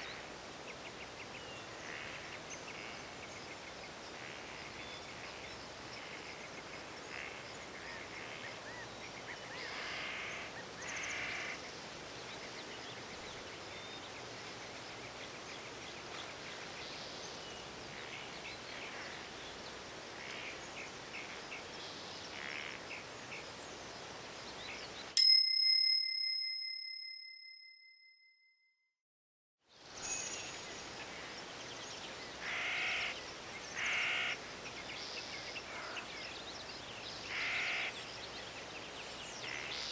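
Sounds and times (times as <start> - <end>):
bird calls: 0.0 - 23.8, 30.8 - 39.9
bell-like ding: 25.2 - 28.6, 30.0 - 30.9.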